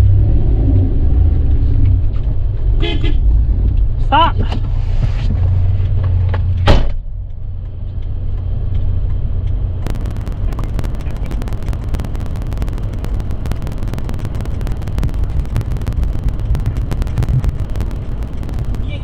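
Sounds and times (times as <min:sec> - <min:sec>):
dense crackling noise: 0:09.8 - 0:19.0.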